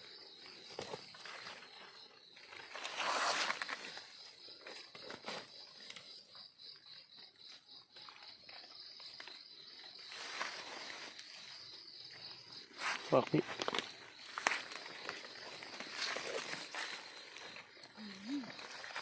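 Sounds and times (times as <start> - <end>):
footsteps in dry leaves: 12.7 - 17.6.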